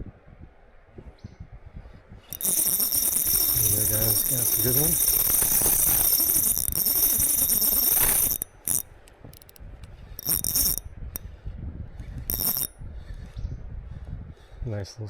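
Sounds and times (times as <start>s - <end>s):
fishing reel whirring: 2.3s - 11.2s, 12.2s - 12.8s.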